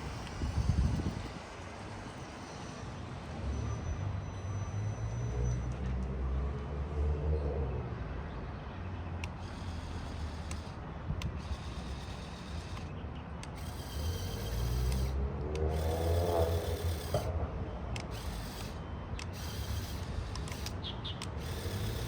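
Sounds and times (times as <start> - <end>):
electric motors whining: 0.0 - 3.5, 9.2 - 22.0
plastic gears rattling: 9.2 - 17.3, 17.9 - 22.0
sharp clicks: 9.2 - 22.0.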